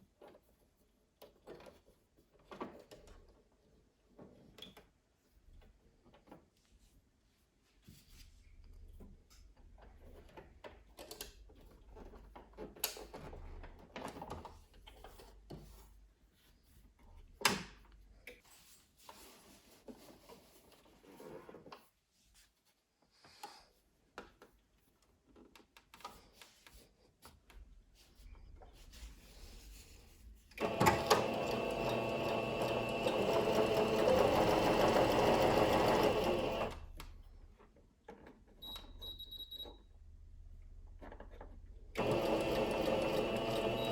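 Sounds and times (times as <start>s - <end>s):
sewing machine running: 30.6s - 36.9s, 41.9s - 43.9s.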